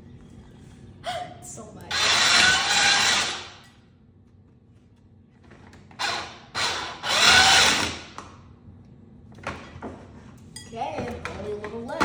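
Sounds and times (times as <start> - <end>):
ice shaving machine whirring: 1.9 - 3.7, 6.0 - 8.2.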